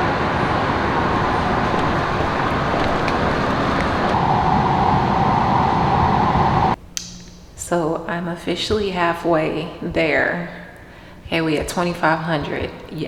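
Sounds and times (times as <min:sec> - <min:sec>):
road traffic noise: 0:00.0 - 0:06.8
steady higher hum: 0:00.0 - 0:06.9.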